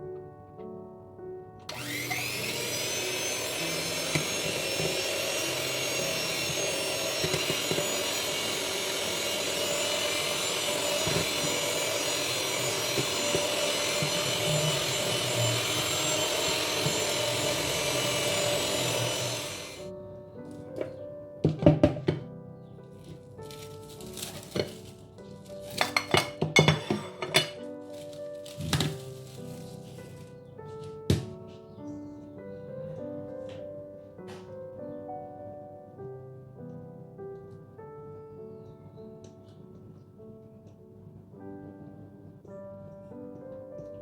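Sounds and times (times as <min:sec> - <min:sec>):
electric mixer whirring: 0:01.7 - 0:19.9, 0:25.6 - 0:27.6.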